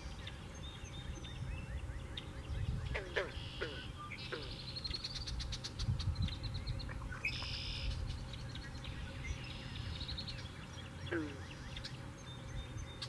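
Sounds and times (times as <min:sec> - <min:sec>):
birds chirping: 0:00.0 - 0:13.0
wind on microphone: 0:01.0 - 0:03.9, 0:05.2 - 0:10.4.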